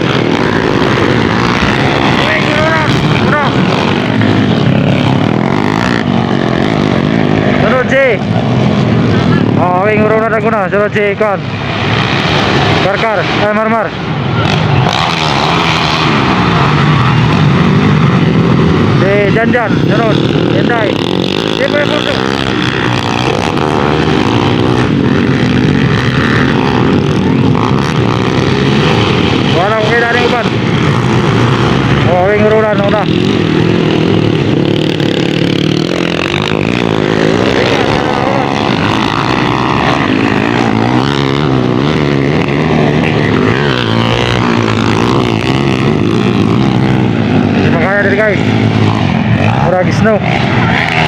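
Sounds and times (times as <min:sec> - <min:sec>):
motorcycle engines revving: 0:00.0 - 0:51.0.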